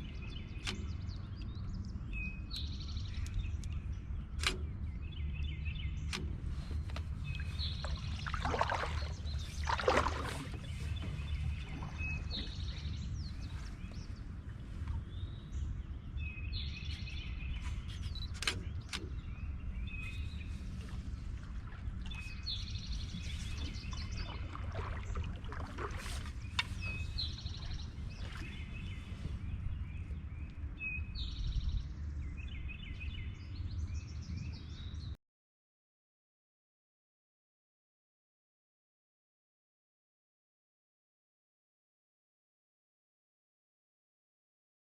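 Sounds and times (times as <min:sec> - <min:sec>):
songbird singing: 0:00.0 - 0:35.2
canoe paddle strokes splashing: 0:06.2 - 0:15.4, 0:17.6 - 0:29.9.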